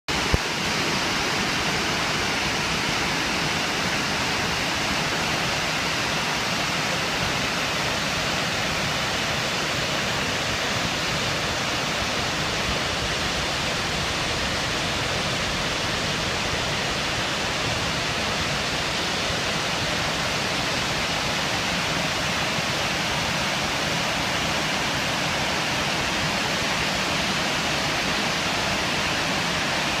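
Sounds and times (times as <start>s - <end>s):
waterfall rushing: 0.1s - 30.0s.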